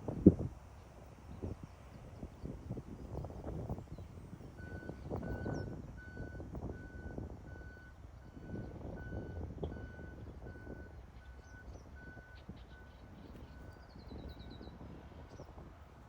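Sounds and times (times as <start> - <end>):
low rumble of engines and traffic: 0.0 - 16.0
reversing alarm beeps: 4.6 - 14.8.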